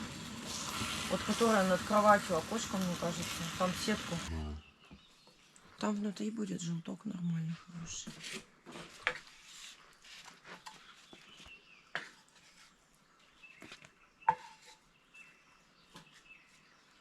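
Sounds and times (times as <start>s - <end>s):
soft rustling: 7.5s - 13.8s.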